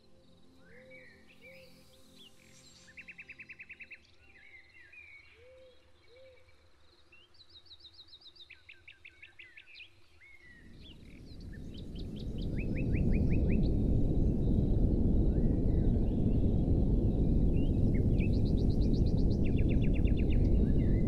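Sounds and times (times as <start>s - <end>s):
songbirds trilling and chirping: 0.0s - 21.0s
low rushing noise: 10.6s - 21.0s.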